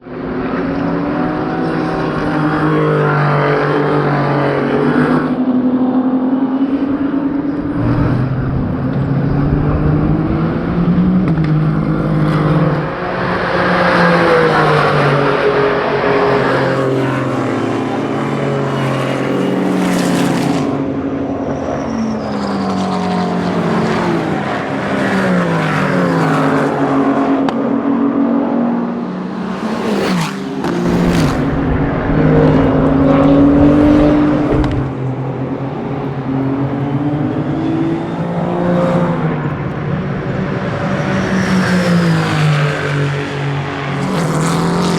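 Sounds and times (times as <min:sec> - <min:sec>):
racing car engines accelerating: 0:00.0 - 0:44.9.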